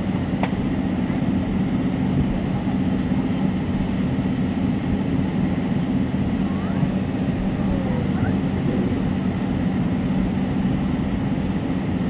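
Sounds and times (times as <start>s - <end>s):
airplane cabin hum: 0.0s - 12.0s.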